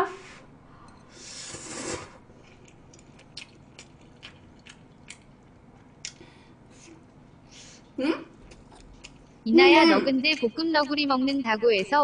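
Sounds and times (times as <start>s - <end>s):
noodles slurped: 1.3s - 2.2s
close-up chewing: 2.5s - 6.2s.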